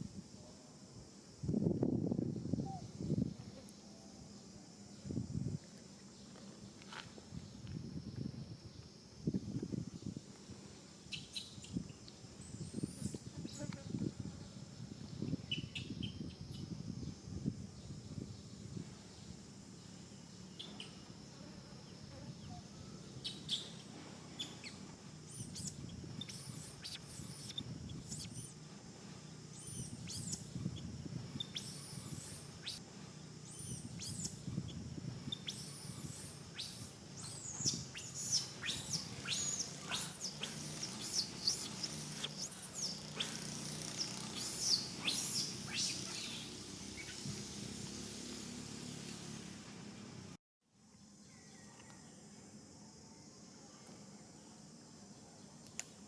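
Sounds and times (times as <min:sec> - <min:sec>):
steady low hum: 0:00.0 - 0:50.4
high-pitched chirping calls: 0:12.4 - 0:13.2, 0:24.4 - 0:28.6, 0:29.6 - 0:30.5, 0:33.5 - 0:34.4, 0:35.3 - 0:47.2.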